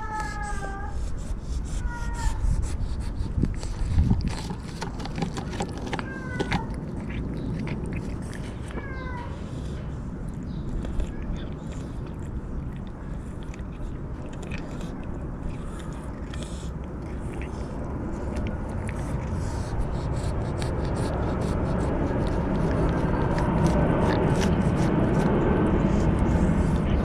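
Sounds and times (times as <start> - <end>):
cat crunching food: 2.8 - 27.0
steady low rumble: 6.6 - 27.0.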